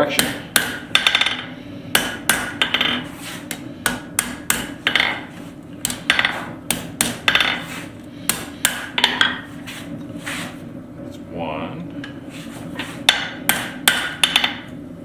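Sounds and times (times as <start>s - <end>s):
hammer striking steel on anvil: 0.0s - 7.6s, 8.3s - 9.4s, 13.1s - 14.7s.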